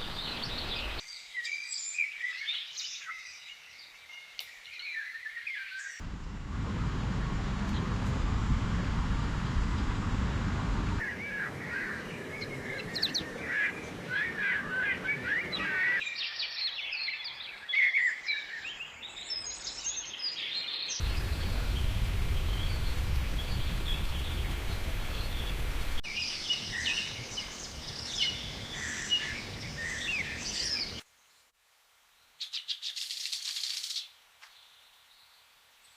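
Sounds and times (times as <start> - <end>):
low background rumble: 6.0 - 15.7, 21.0 - 26.0
birds chirping and calling: 11.0 - 16.6, 21.0 - 31.0.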